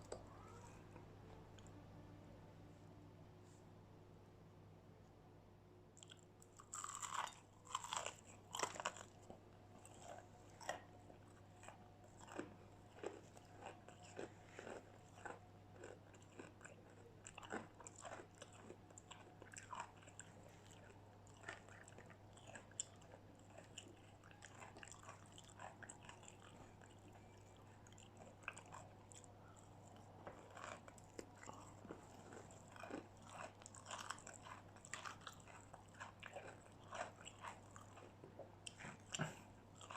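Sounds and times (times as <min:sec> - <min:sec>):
crunching fried chicken: 0:06.0 - 0:38.2
chewing: 0:06.0 - 0:39.9.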